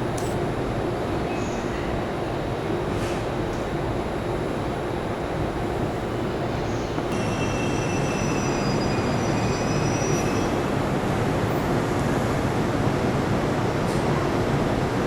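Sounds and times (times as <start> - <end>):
train rumbling on rails: 5.3 - 15.0
faint wheel squeal: 6.7 - 10.6.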